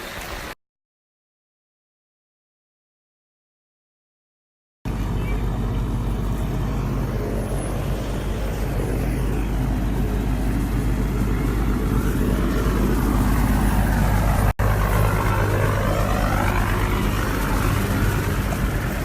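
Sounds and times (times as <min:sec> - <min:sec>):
vehicle engine low hum: 0:04.9 - 0:19.0.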